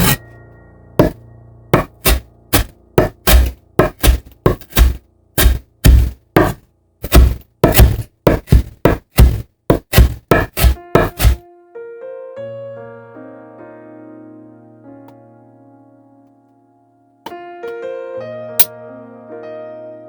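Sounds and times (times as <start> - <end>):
knife chopping on cutting board: 0.0 - 0.2, 1.8 - 11.4.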